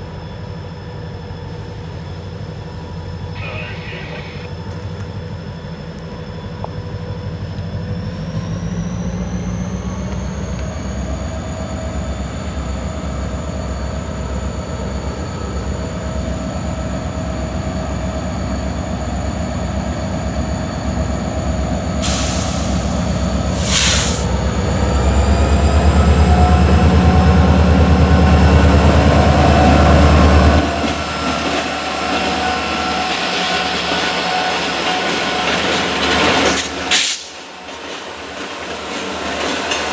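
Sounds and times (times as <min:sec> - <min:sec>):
diesel locomotive engines: 0:00.0 - 0:39.9
air hiss bursts: 0:22.0 - 0:24.3, 0:36.9 - 0:37.4.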